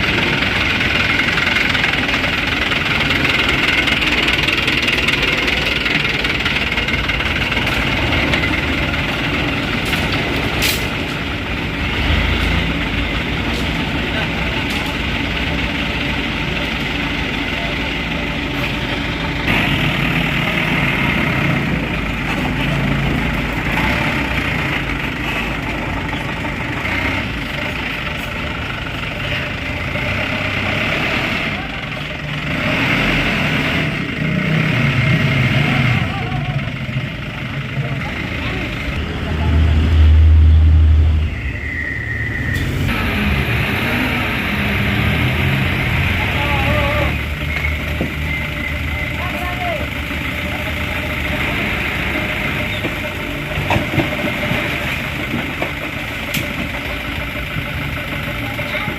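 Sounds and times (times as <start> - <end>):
dump truck engine running: 0.0 - 58.9
steady high tone: 41.0 - 43.5.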